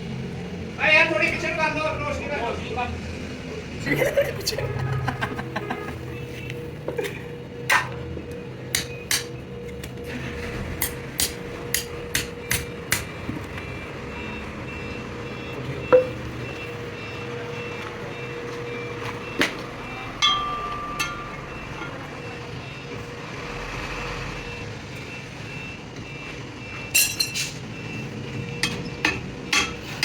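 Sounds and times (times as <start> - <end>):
machinery humming: 4.0 - 26.9
hammer striking metal: 10.8 - 13.2, 15.9 - 16.2, 20.2 - 22.0.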